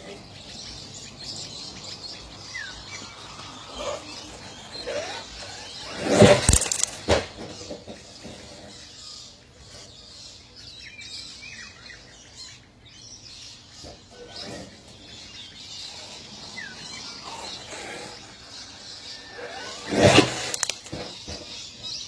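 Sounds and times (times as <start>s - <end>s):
birds chirping: 0.0s - 22.0s
faint outdoor background: 0.0s - 22.0s.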